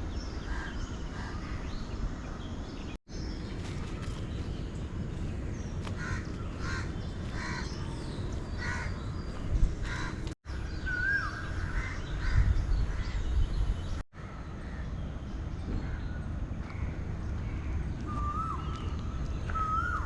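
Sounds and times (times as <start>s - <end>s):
crow cawing: 6.0s - 7.7s, 9.8s - 10.2s.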